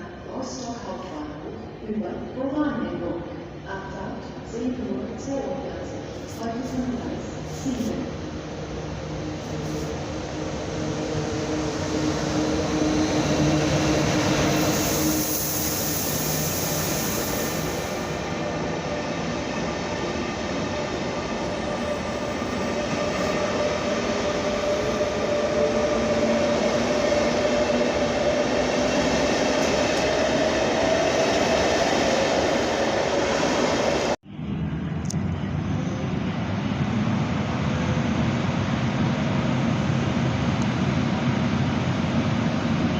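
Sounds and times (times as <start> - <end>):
train hiss: 6.1 - 8.2, 9.3 - 10.4, 13.5 - 18.3.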